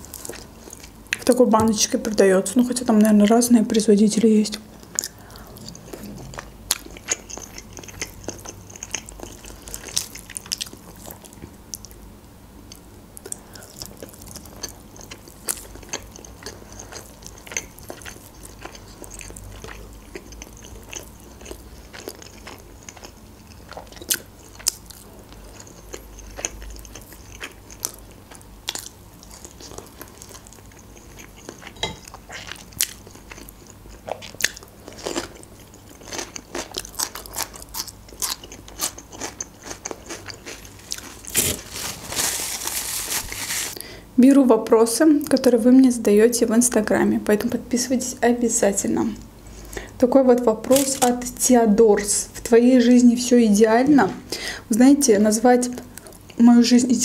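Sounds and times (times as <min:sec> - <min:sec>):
chewing with mouth clicks: 0:04.5 - 0:12.0, 0:12.7 - 0:41.7.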